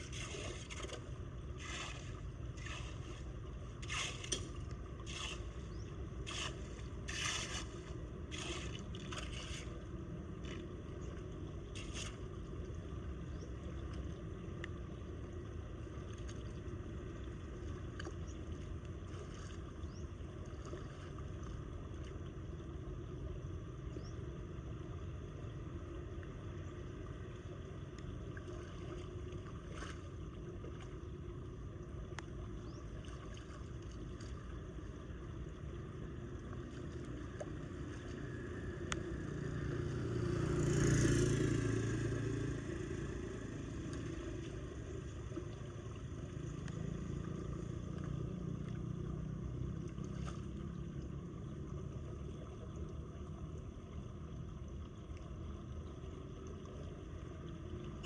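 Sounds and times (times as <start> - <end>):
floodwater pouring into drain: 0.0 - 3.2, 3.8 - 5.6, 6.2 - 9.8.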